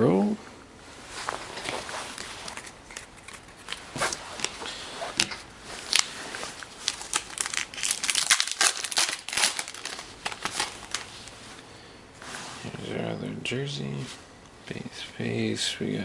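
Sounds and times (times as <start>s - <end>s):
foil wrapper crinkling and tearing: 5.2s - 11.4s.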